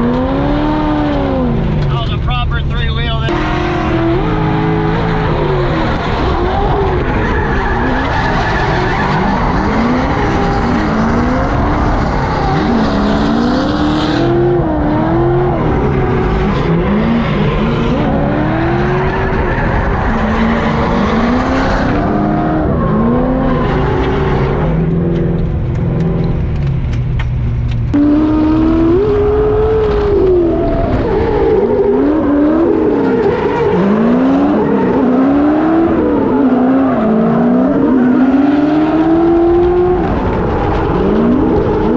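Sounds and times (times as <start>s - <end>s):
car engine revving hard: 0.0s - 25.4s, 28.0s - 41.9s
tyres squealing and skidding: 3.3s - 13.8s, 16.2s - 24.8s.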